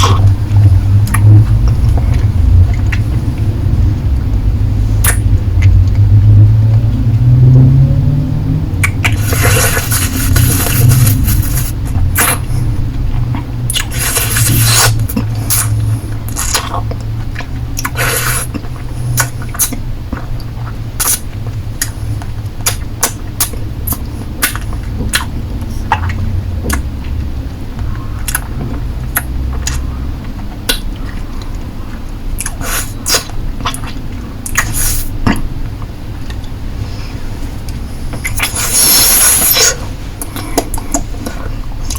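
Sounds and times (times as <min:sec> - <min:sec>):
steady low hum: 0:00.0 - 0:41.9
lips and tongue licking lollipop: 0:05.0 - 0:05.8, 0:08.8 - 0:12.6, 0:13.3 - 0:22.0, 0:22.6 - 0:26.9, 0:38.2 - 0:41.9
slurping licks: 0:08.8 - 0:12.7, 0:13.7 - 0:16.9, 0:37.7 - 0:41.9.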